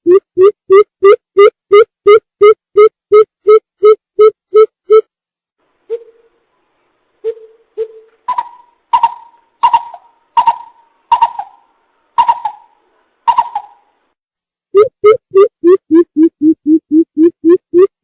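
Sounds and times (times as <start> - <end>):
coucal hooting: 7.2 - 13.9.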